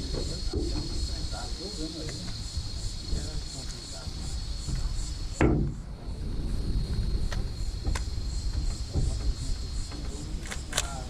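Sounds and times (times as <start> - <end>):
insects chirring: 0.0 - 11.0
sudden knock: 4.7 - 5.8
sharp clicks: 10.4 - 11.0.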